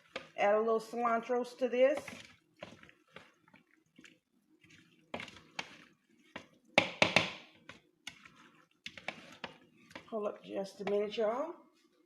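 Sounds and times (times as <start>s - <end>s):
utensils knocking on bowl: 6.4s - 7.5s.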